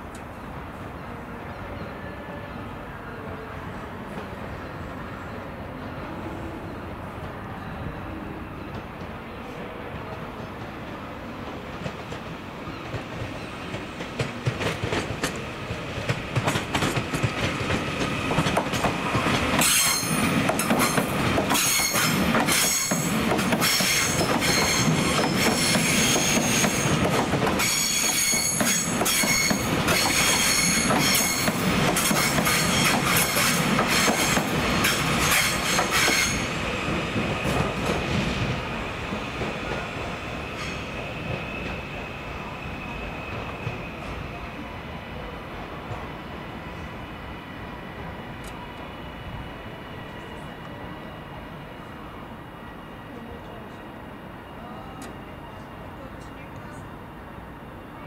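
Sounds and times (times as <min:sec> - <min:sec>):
train wheels knocking on rail joints: 0:11.8 - 0:36.4.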